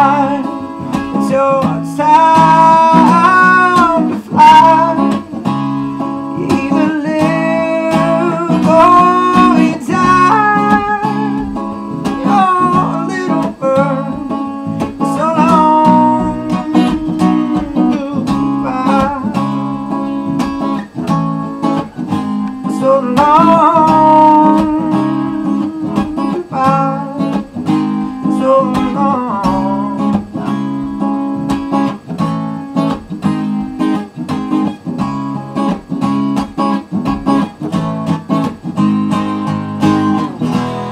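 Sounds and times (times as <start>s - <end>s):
wordless singing: 0.0s - 5.4s, 6.2s - 20.3s, 20.9s - 31.0s
acoustic guitar strumming: 0.0s - 40.9s.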